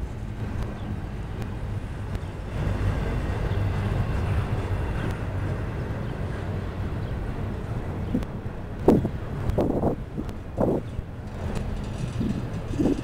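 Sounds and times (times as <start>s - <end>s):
steel wheels rumbling on rail: 0.0s - 13.0s
faint clicks: 8.1s - 13.0s.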